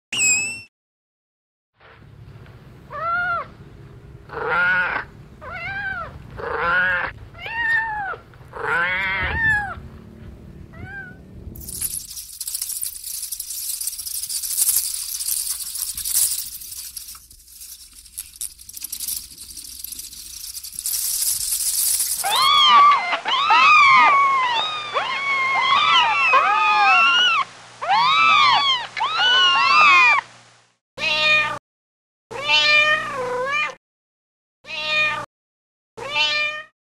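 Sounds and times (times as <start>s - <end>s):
kittens meowing: 4.3s - 9.8s.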